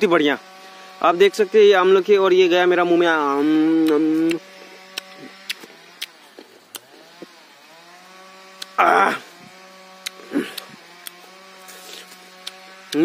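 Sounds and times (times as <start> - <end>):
crunchy fruit being chewed: 3.4 - 7.5, 8.5 - 13.0
loud breathy burst: 10.2 - 10.8.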